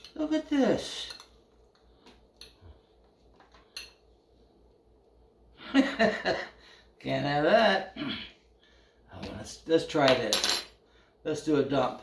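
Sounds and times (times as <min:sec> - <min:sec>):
cutlery clinking on a dish: 0:10.2 - 0:10.7.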